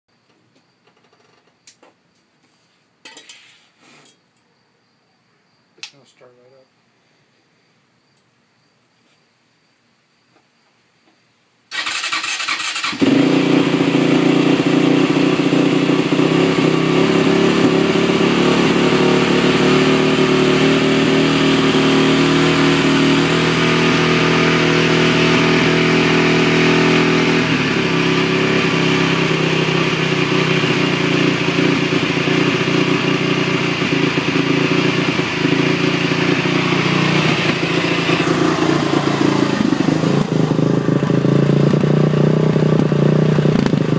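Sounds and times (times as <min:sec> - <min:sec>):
engine cranking and starting: 0:11.7 - 0:13.2.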